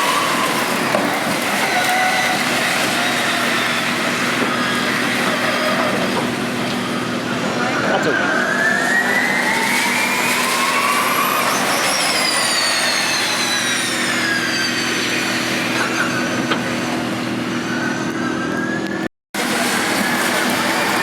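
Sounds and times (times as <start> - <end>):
electric race cars whining past: 7.0 - 18.7.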